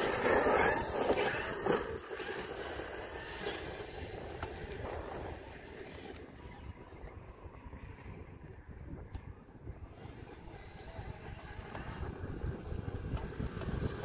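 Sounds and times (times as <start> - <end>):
rc truck driving over rough ground: 0.0 - 14.0.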